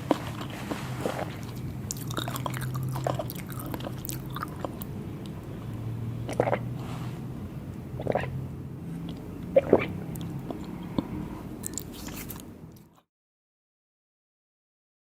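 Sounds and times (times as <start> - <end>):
chewing and biting: 0.0 - 5.4, 6.3 - 6.7, 9.0 - 13.0
low steady hum: 0.0 - 13.0.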